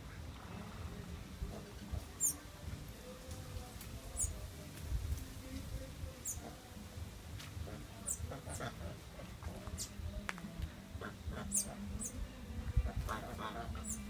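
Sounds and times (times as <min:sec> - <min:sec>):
wind rumble on microphone: 0:00.0 - 0:07.0, 0:11.2 - 0:14.0.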